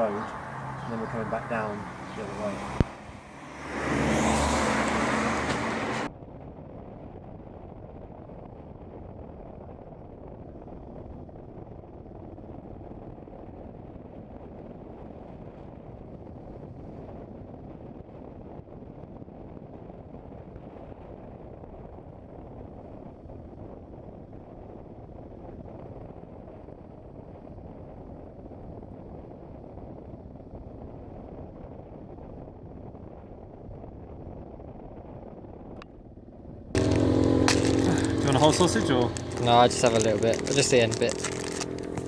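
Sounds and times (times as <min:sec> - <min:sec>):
motorcycle engine: 0:00.0 - 0:06.1, 0:36.8 - 0:42.0
wind noise: 0:00.0 - 0:42.0.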